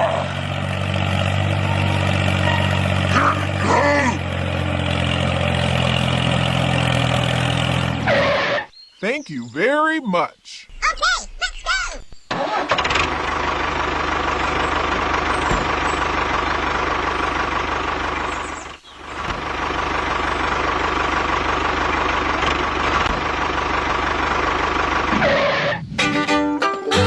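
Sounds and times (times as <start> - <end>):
tractor engine chugging: 0.0 - 8.6, 10.7 - 27.0.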